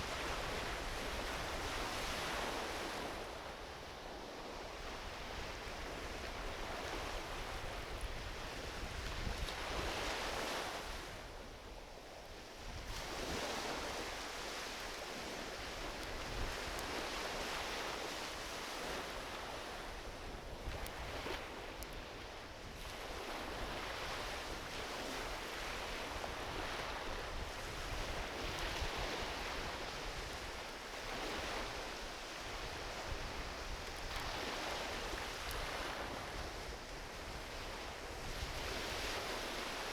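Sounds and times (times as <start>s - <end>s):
ocean waves washing onto beach: 0.0s - 39.9s
campfire crackles: 14.5s - 18.3s, 19.1s - 22.1s, 33.6s - 35.8s.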